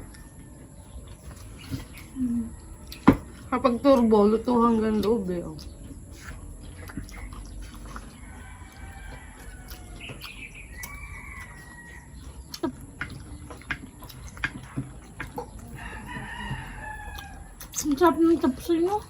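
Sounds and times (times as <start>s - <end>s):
rooster crowing: 8.0s - 12.4s, 15.7s - 17.8s.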